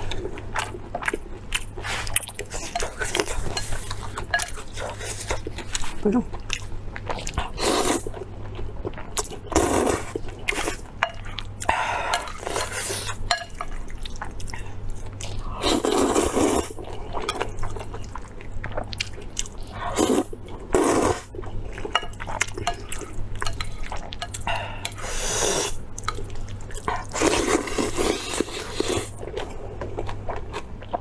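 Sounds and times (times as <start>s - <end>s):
wet chewing and slurping: 0.0s - 31.0s
utensils clinking on dishes: 2.1s - 5.7s.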